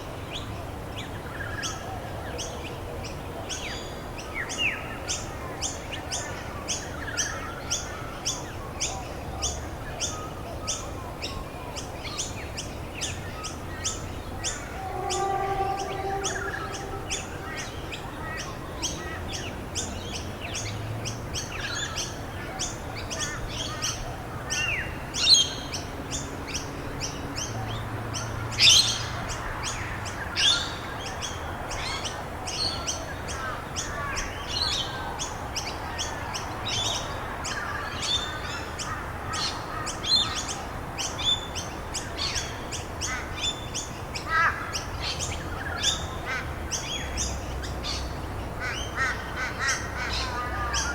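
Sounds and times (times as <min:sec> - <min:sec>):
loud sweeping bird calls: 0:13.1 - 0:19.4.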